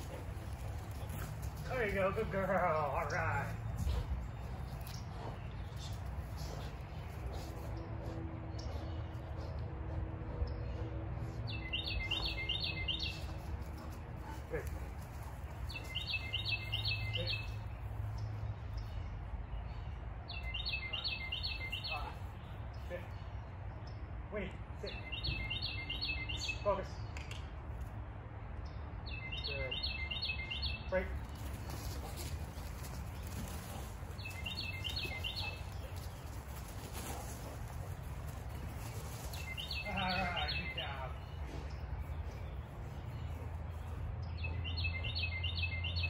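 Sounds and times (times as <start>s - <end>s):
songbird chirping: 0.0s - 27.9s, 28.6s - 46.0s
songbird singing high chirps: 11.5s - 13.3s, 15.7s - 17.6s, 20.3s - 22.1s, 24.9s - 27.1s, 29.0s - 31.0s, 34.2s - 36.3s, 39.3s - 46.0s.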